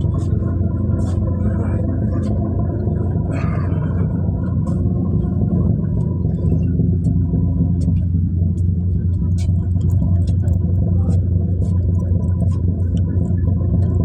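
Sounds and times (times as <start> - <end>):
faint steady whine: 0.0 - 14.0
ship engine low drone: 0.0 - 14.0.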